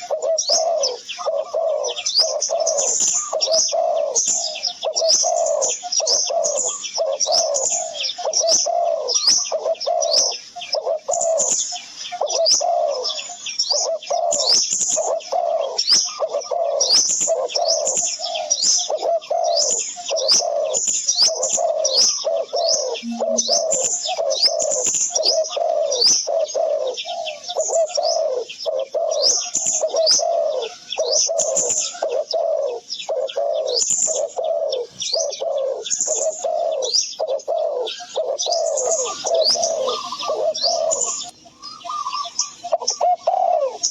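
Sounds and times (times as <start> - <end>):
low bird call: 0.0 - 43.9
high falling bird chirps: 20.8 - 26.1, 37.9 - 43.1.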